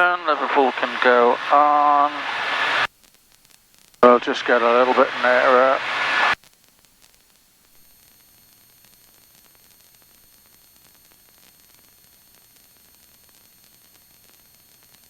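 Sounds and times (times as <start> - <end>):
intercom hiss: 0.0 - 2.9, 4.0 - 6.4.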